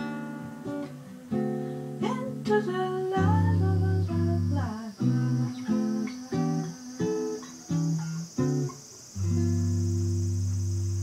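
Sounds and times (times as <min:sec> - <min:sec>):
acoustic guitar chords: 0:00.0 - 0:11.0
cicadas buzzing: 0:00.0 - 0:11.0.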